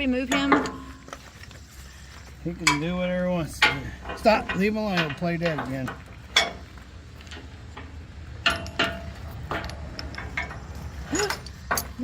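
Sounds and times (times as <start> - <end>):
metal chains clinking: 7.3 - 12.0.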